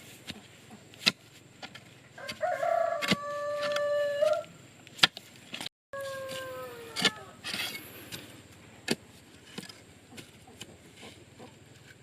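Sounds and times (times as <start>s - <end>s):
rooster crowing: 2.2s - 4.5s, 6.0s - 7.4s.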